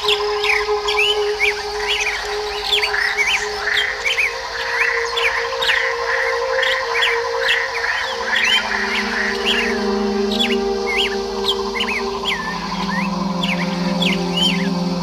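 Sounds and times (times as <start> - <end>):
songbirds chirping and singing: 0.0 - 15.0
steady low tones: 0.0 - 15.0.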